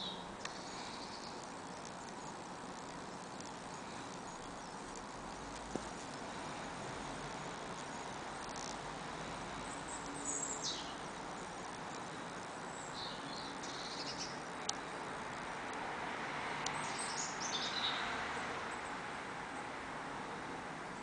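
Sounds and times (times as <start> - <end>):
faint bird chirps: 0.0 - 5.5, 9.6 - 14.9
steady background hiss: 0.0 - 21.0.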